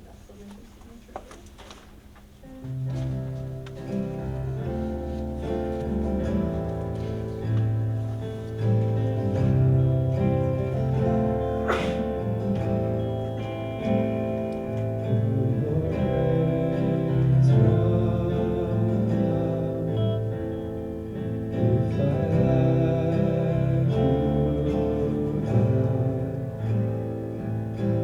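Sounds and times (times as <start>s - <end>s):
strummed guitar: 2.4s - 28.0s
band playing worship music: 2.8s - 28.0s.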